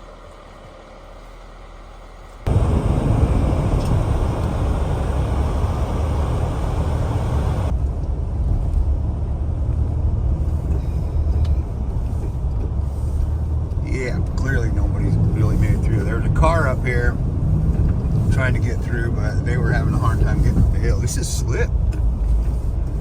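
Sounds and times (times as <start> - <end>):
high road hiss: 0.0 - 7.7
vehicle engine and road rumble: 0.0 - 23.0.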